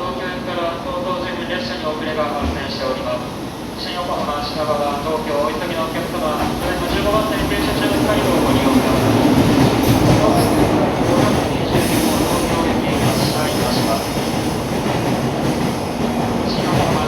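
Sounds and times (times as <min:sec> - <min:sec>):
rail hiss: 0:02.5 - 0:17.0
train wheels rumbling: 0:03.8 - 0:17.0.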